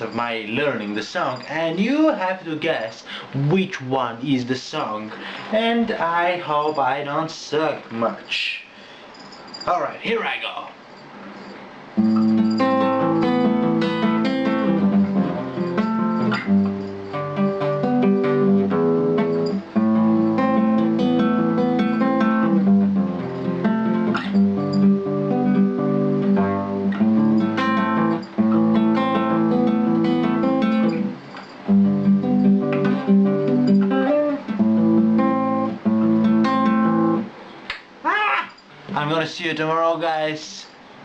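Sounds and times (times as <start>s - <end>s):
acoustic guitar strumming: 11.1s - 37.5s.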